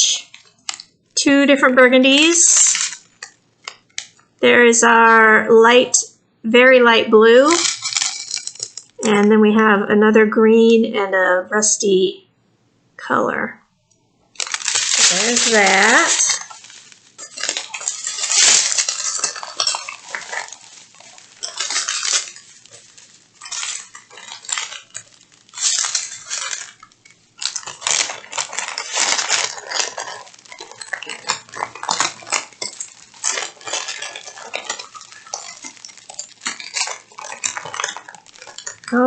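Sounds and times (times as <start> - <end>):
plastic packets rustling: 0.0 - 1.0, 2.2 - 4.3, 7.5 - 9.1, 14.3 - 39.0
small clicks and clinks: 7.6 - 9.2, 14.8 - 39.0.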